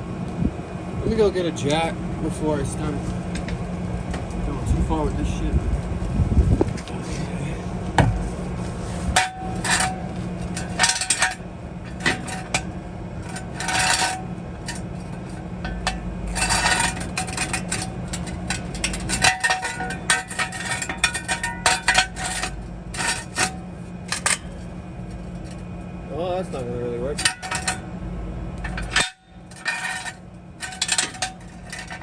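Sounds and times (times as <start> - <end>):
low steady hum: 0.0 - 32.0
metal tools clanking: 1.3 - 3.6, 9.1 - 25.7, 26.4 - 27.9, 28.6 - 32.0.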